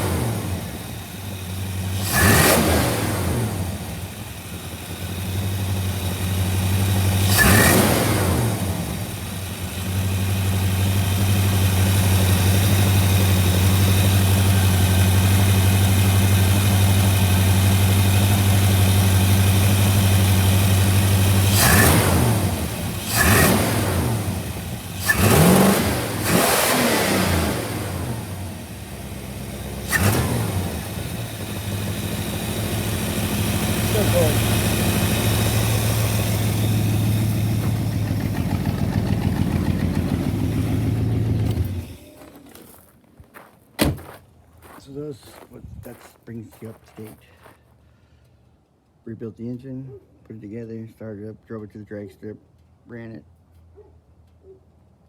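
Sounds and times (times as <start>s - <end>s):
engine idling with throttle blips: 0.0s - 42.5s.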